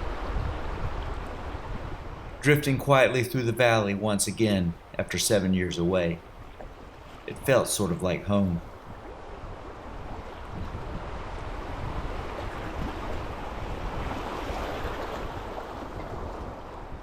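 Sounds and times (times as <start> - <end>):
wind buffeting microphone: 0.0 - 3.0, 4.4 - 17.0
river water rushing: 0.0 - 10.5.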